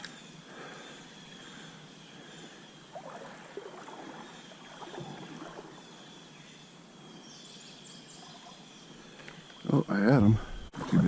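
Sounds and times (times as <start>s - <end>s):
stream water flowing: 2.8s - 6.4s
water splashing: 2.9s - 5.8s.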